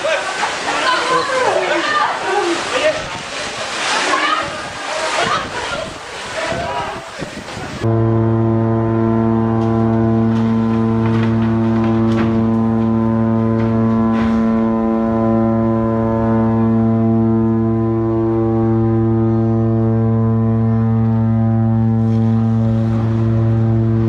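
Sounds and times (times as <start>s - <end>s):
ship's horn low blast: 7.8s - 24.0s.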